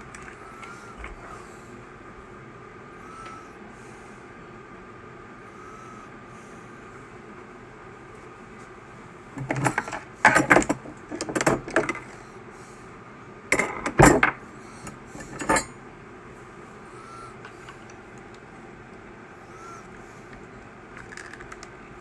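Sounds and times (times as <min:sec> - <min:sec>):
small tools and plastic parts clattering: 0:09.4 - 0:12.2, 0:13.6 - 0:15.8, 0:21.0 - 0:21.7.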